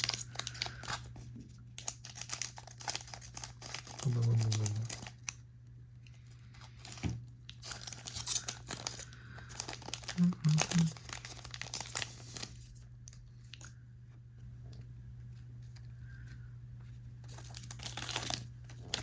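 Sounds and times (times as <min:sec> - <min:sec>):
foil wrappers crinkling and tearing: 0:00.0 - 0:05.4, 0:06.5 - 0:12.8, 0:17.2 - 0:19.0
steady low hum: 0:03.9 - 0:19.0
person humming: 0:10.1 - 0:11.0.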